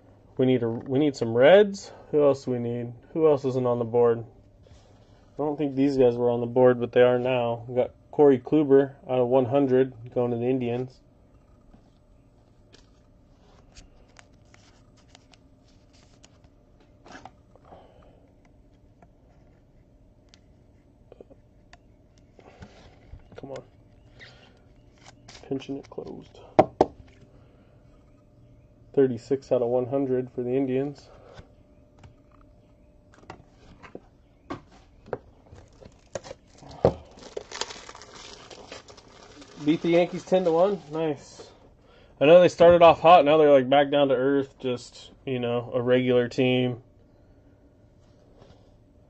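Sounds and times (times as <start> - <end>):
trading cards rustling and clicking: 12.6 - 17.4, 24.2 - 26.4.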